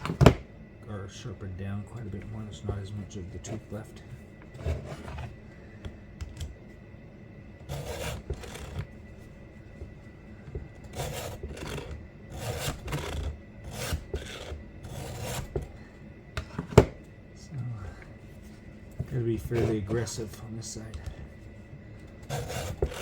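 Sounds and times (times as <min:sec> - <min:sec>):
file rasping on saw chain: 0:07.7 - 0:08.8, 0:10.9 - 0:15.5, 0:22.3 - 0:23.0.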